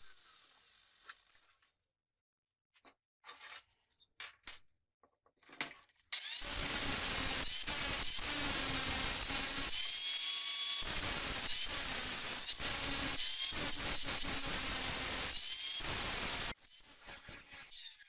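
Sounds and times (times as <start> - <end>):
angle grinder grinding steel: 6.2 - 17.3.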